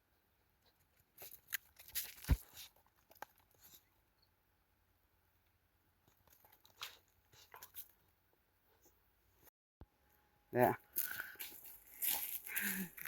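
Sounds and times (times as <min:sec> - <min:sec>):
crackling handling noises: 0:00.6 - 0:04.0, 0:10.9 - 0:13.0.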